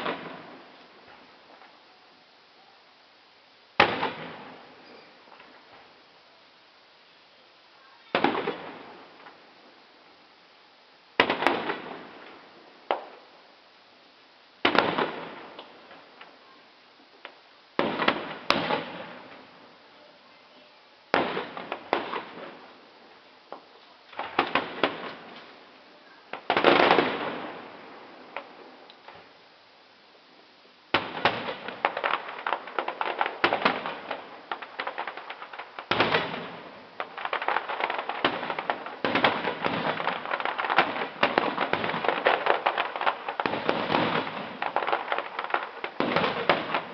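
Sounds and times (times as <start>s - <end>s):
firework pops and crackles: 0.0s - 1.8s, 3.8s - 5.9s, 8.0s - 9.5s, 11.2s - 13.4s, 14.6s - 16.4s, 17.0s - 19.6s, 21.1s - 22.8s, 23.5s - 29.3s, 30.9s - 46.9s.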